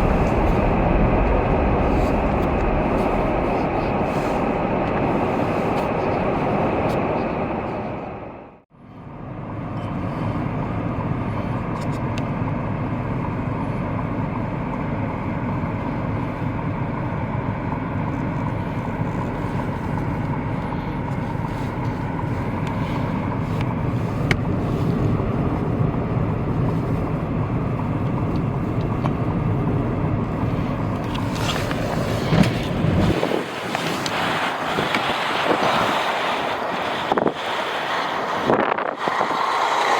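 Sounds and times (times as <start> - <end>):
wind noise on microphone: 0.0 - 8.4, 18.1 - 39.9
vehicle road and engine noise: 0.0 - 39.9.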